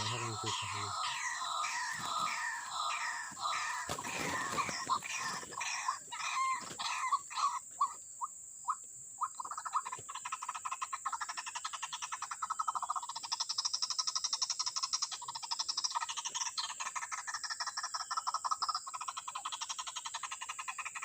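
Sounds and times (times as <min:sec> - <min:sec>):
bird fast pulsing chatter: 0:00.0 - 0:08.0
bird harsh repeated calls: 0:00.0 - 0:13.4.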